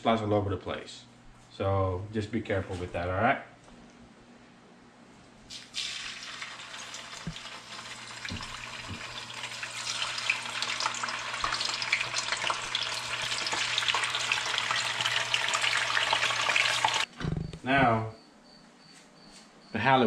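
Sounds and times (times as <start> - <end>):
tofu sizzling in frying pan: 5.6 - 17.1.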